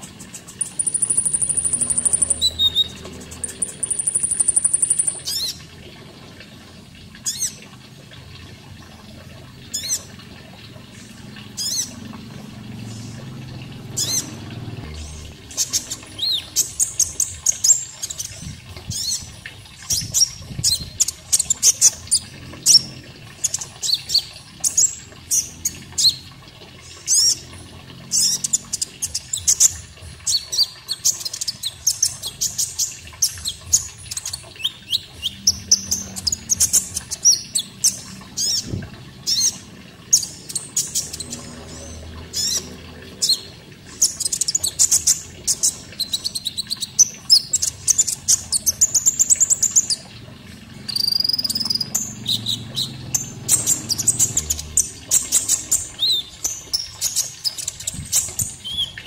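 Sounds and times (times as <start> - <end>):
faint running water: 0.0 - 59.0
bird high sharp chirps: 0.3 - 5.5.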